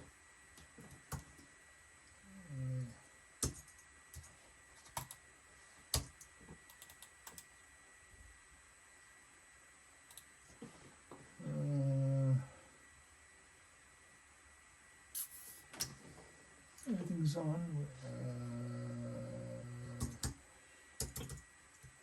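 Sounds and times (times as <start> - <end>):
keyboard key presses: 21.0 - 21.9.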